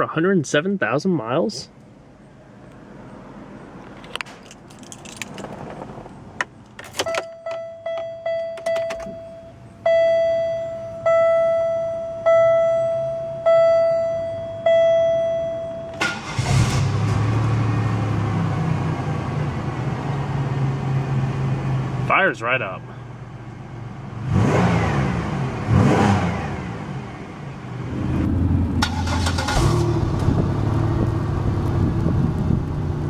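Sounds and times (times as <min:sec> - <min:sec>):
car engine cranking and idling: 0:01.8 - 0:22.2, 0:22.9 - 0:33.0
car warning chime dinging: 0:07.0 - 0:16.4.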